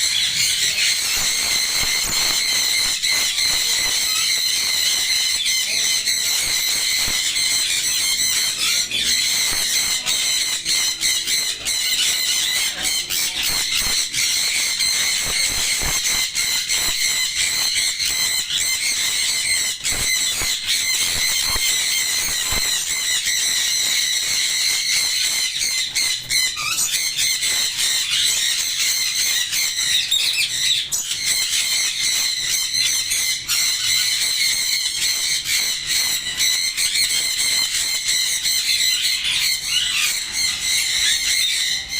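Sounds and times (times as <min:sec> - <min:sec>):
parrots screeching and chattering: 0:00.0 - 0:41.9.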